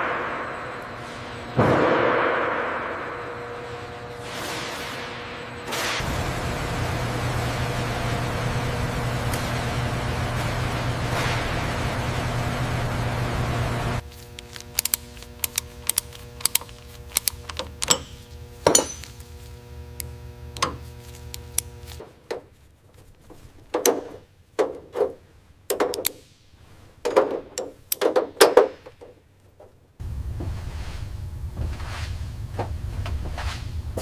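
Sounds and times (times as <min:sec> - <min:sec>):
sharp metallic knocks and clanks: 0:00.0 - 0:06.1, 0:17.8 - 0:19.2
steady hum: 0:00.0 - 0:24.4, 0:29.4 - 0:34.0.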